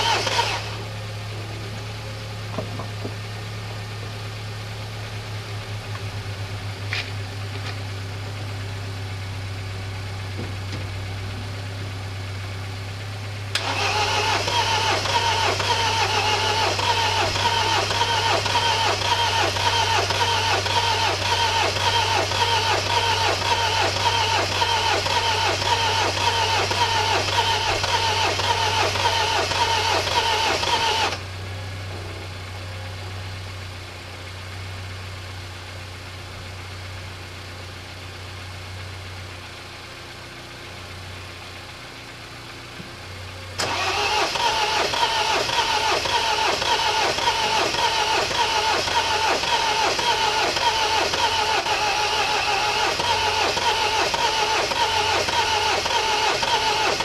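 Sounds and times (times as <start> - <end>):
starter motor cranking engine: 0.0 - 0.9, 13.5 - 31.2, 43.6 - 57.0.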